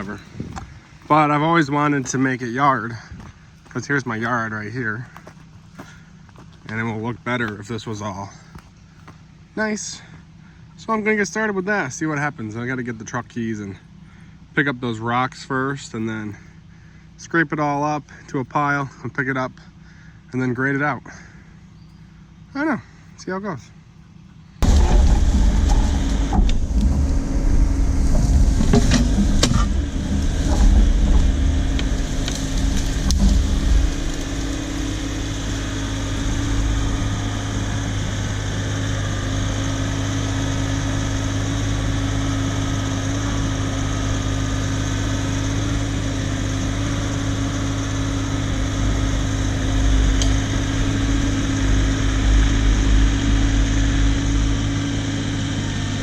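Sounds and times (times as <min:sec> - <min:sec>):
vehicle engine running: 0:00.0 - 0:56.0
clanks and knocks: 0:24.6 - 0:39.8.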